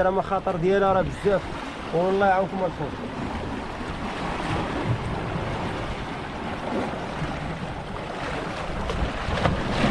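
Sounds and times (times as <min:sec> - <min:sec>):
sea waves rushing: 0:00.0 - 0:09.9
wind on microphone: 0:02.8 - 0:09.9.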